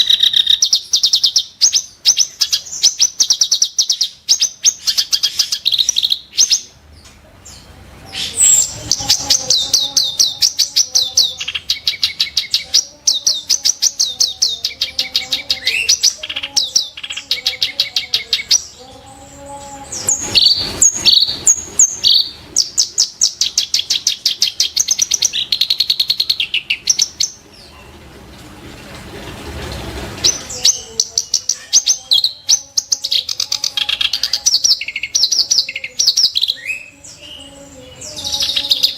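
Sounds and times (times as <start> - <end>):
reed warbler singing: 7.6 - 27.7, 30.2 - 38.9.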